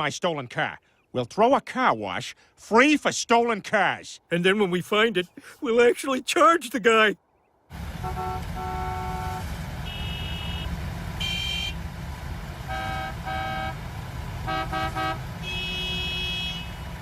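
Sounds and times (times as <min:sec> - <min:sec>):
car horns honking: 0:07.9 - 0:11.8, 0:12.6 - 0:17.0.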